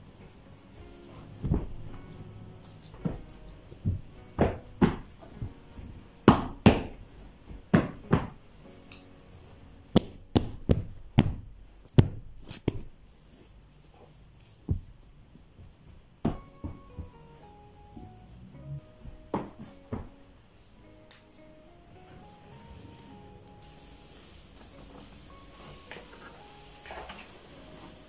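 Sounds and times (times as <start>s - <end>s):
sharp knocks and thuds: 1.4s - 2.0s.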